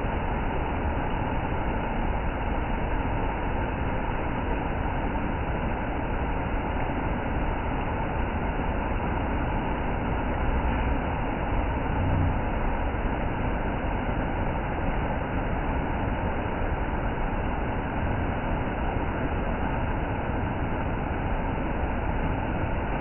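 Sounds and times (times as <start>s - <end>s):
waterfall roaring: 8.5s - 23.0s.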